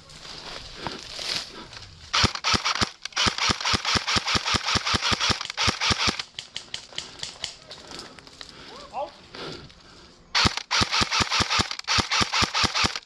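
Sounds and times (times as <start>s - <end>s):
airsoft rifle firing: 2.1s - 7.4s, 10.4s - 13.0s.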